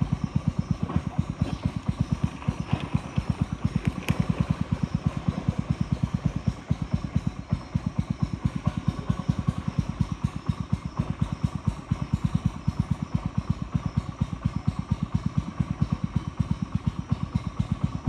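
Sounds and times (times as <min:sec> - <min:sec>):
boat engine thudding: 0:00.0 - 0:18.0.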